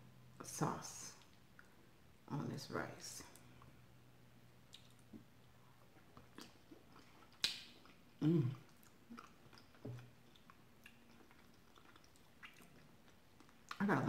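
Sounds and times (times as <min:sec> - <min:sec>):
person chewing food: 0:04.6 - 0:13.8
low throat hums: 0:08.2 - 0:08.7.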